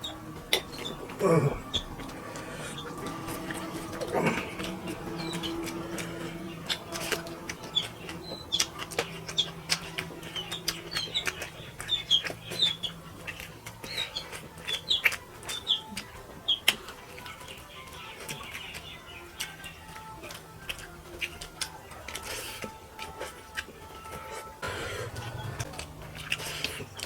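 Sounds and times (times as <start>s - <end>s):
high squeaky chirps: 0.0s - 18.8s
wet chewing and smacking: 0.0s - 27.0s.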